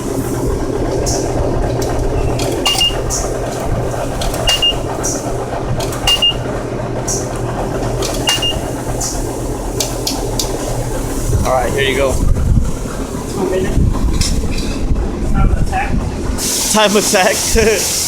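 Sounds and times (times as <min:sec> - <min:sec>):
car wash hum and spray hiss: 0:00.0 - 0:18.0
sharp clinks: 0:02.5 - 0:03.3, 0:04.4 - 0:04.9, 0:06.0 - 0:06.5, 0:08.2 - 0:08.7
high double beep: 0:02.7 - 0:03.2, 0:04.5 - 0:04.9, 0:06.1 - 0:06.5, 0:08.2 - 0:08.7.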